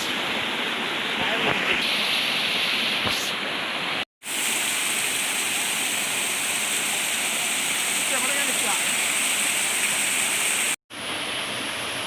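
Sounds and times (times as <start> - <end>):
waterfall rushing: 0.0 - 10.8.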